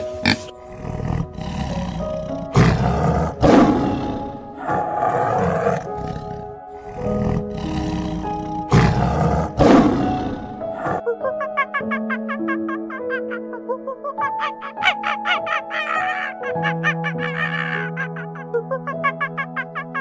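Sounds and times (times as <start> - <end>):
background music: 0.0 - 20.0
tiger roaring: 0.3 - 11.0.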